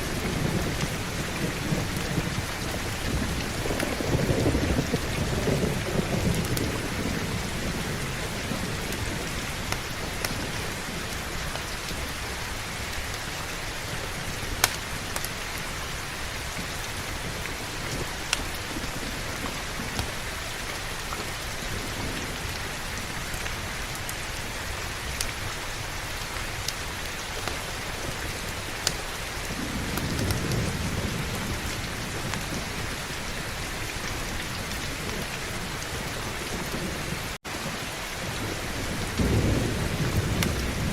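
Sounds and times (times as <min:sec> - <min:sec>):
rolling thunder: 0:00.0 - 0:12.8, 0:27.7 - 0:40.9
heavy rain: 0:00.0 - 0:40.9.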